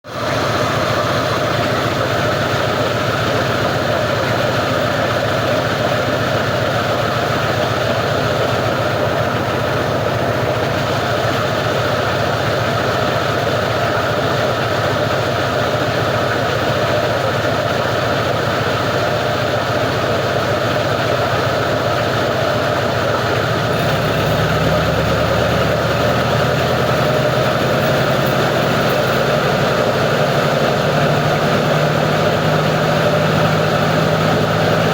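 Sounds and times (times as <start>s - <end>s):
plastic grinder machine droning: 23.4s - 34.9s.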